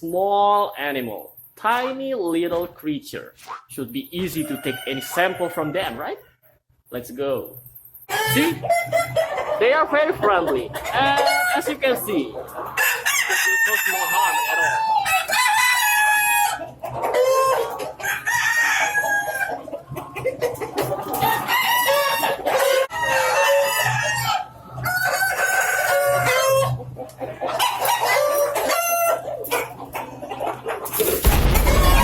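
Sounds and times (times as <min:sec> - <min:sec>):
chicken clucking: 0:03.4 - 0:06.6, 0:07.4 - 0:31.2
roosters crowing: 0:04.2 - 0:06.1, 0:12.8 - 0:19.6, 0:21.2 - 0:26.8, 0:31.0 - 0:32.0.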